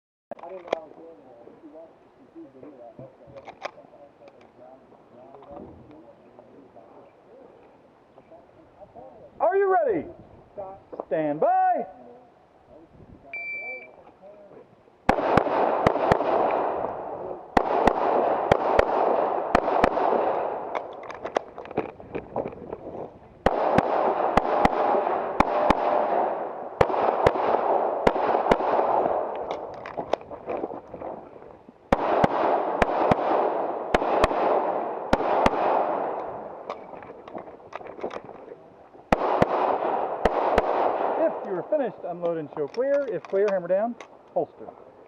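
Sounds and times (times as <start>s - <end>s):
handgun shots with echo: 15.1s - 17.0s, 17.6s - 21.8s, 23.5s - 30.0s.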